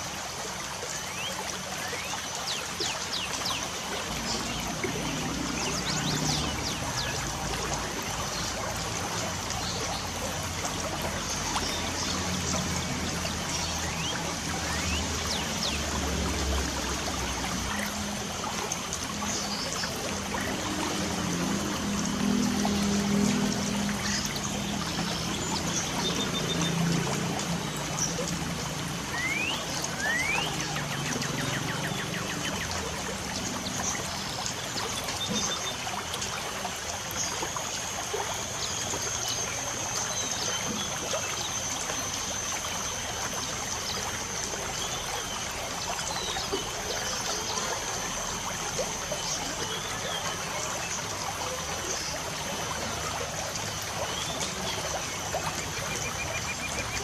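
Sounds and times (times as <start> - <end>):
birds chirping: 19.1 - 35.8.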